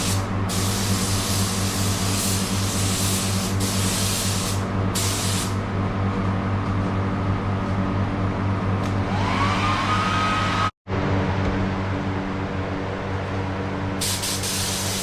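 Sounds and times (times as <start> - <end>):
paint spray gun hissing: 0.0 - 5.6, 14.0 - 15.0.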